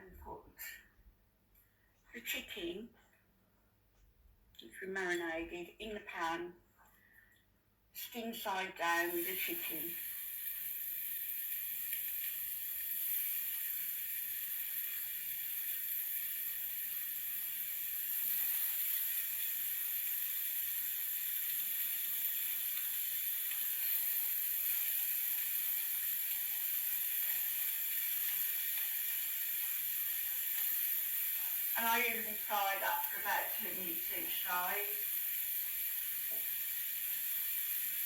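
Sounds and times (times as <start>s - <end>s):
chicken sizzling in hot oil: 8.8s - 38.0s.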